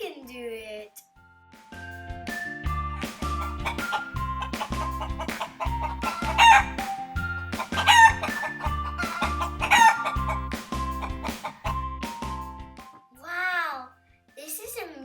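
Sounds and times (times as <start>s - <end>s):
background music with steady beat: 0.0s - 15.0s
chicken squawks: 3.4s - 11.8s.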